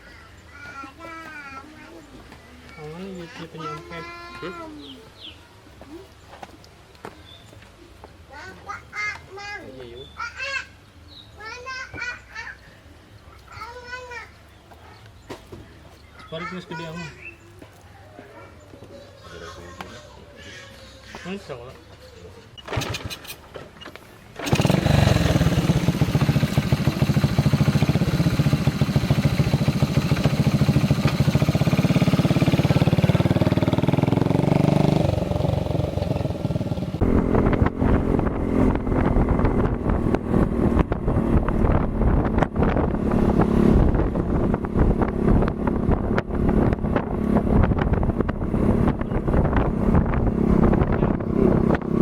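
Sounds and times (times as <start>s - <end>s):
motorcycle engine running: 24.4s - 52.0s.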